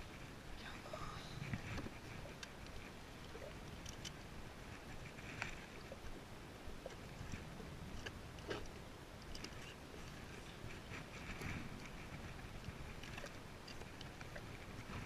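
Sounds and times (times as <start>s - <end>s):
water lapping against kayak hull: 0.0s - 15.0s
small clicks and knocks: 3.7s - 4.2s, 8.0s - 10.2s.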